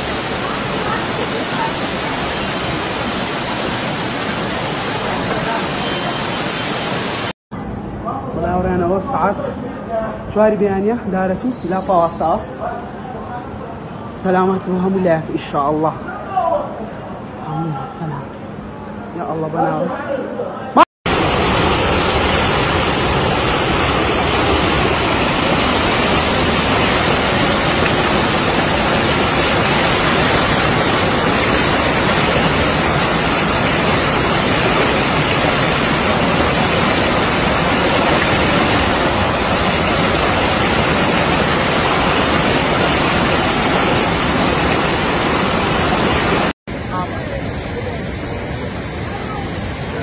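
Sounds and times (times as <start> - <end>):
floodwater rushing: 0.0 - 7.4, 21.1 - 50.0.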